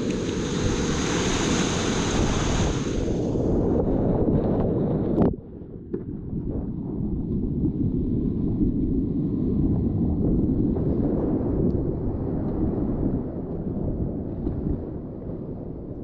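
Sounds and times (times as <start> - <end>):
faint splashes: 0.0 - 3.4
muffled whitewater rushing: 0.0 - 4.5.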